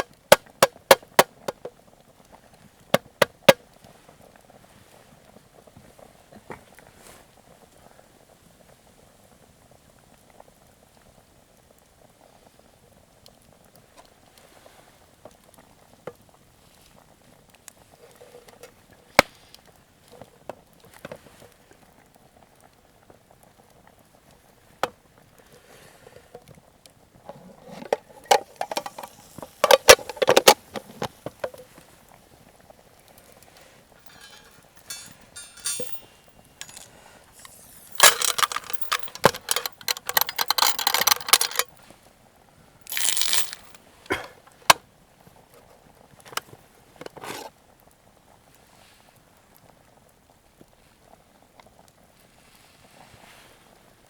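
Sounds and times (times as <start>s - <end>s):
campfire crackling: 9.6s - 35.4s, 36.0s - 38.0s
noisy bursts at cooking pot: 36.1s - 38.0s.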